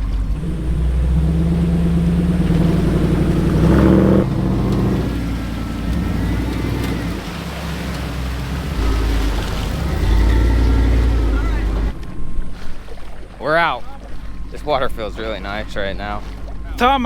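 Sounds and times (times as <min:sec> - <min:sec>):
truck engine revving under load: 0:00.0 - 0:12.0.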